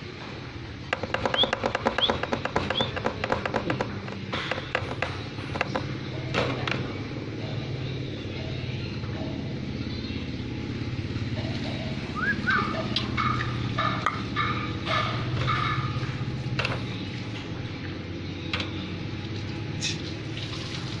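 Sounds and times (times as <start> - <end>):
pet bird chirping: 1.1 - 3.4, 11.4 - 16.0.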